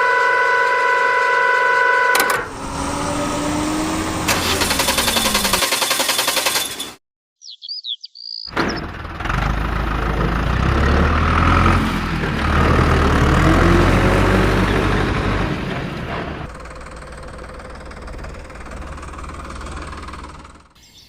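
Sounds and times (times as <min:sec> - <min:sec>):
truck engine rumbling: 0:00.0 - 0:07.0, 0:08.5 - 0:20.8
high whistling chirps: 0:07.4 - 0:08.5.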